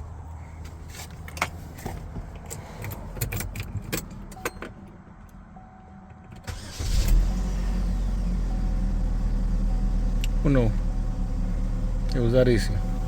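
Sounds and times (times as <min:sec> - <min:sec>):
car keys jangling: 0:02.3 - 0:04.8.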